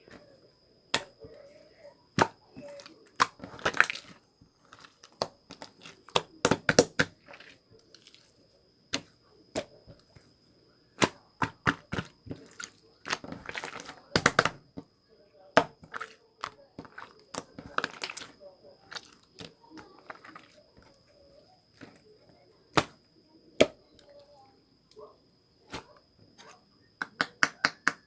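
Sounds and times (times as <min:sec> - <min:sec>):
slime clicking and popping: 0:02.2 - 0:07.2, 0:11.0 - 0:14.7, 0:15.6 - 0:20.5, 0:22.7 - 0:23.0.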